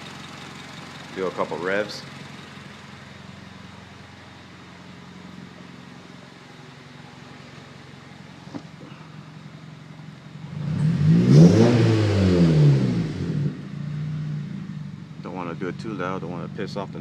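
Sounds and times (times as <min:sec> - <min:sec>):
car engine idling: 0:00.0 - 0:17.0
engine revving: 0:10.3 - 0:17.0.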